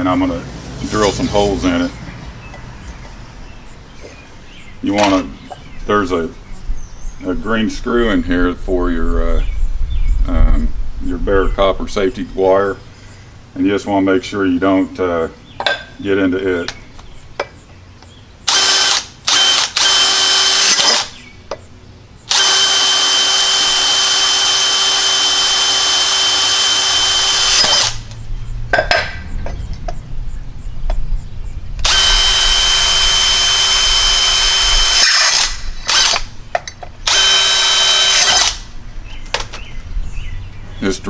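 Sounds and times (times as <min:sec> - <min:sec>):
electric drill boring into wood: 0:18.5 - 0:21.2, 0:22.3 - 0:28.1, 0:31.8 - 0:36.3, 0:37.0 - 0:38.6.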